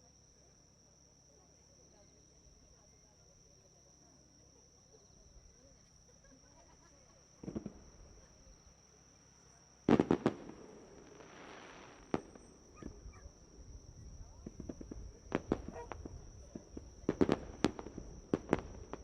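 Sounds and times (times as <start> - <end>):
fireworks loud bangs: 7.4 - 7.9, 9.9 - 13.0, 14.4 - 19.0
fireworks cracking: 7.4 - 8.0, 9.9 - 13.0, 14.3 - 19.0
crackling hiss: 9.8 - 19.0.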